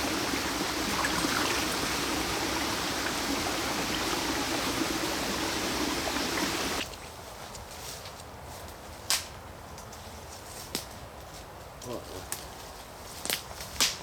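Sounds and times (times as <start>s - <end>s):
stream rushing: 0.0s - 7.1s.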